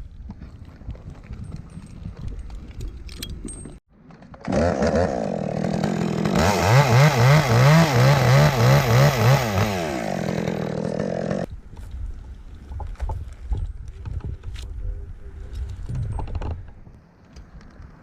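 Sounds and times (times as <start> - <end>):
chainsaw engine running: 4.3 - 11.5.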